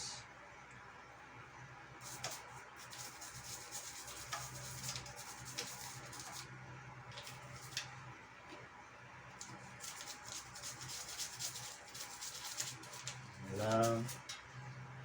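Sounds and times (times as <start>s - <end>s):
toothbrush scrubbing bike chain: 2.0s - 6.4s, 9.7s - 14.4s.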